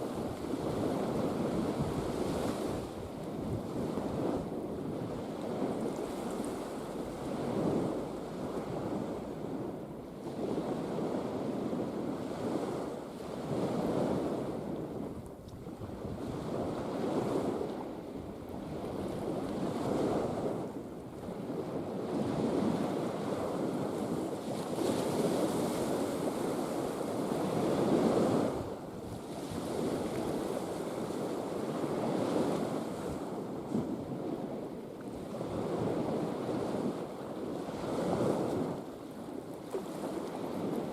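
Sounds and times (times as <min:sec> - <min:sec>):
wind on microphone: 0:00.0 - 0:40.9
sea waves washing: 0:15.9 - 0:40.9.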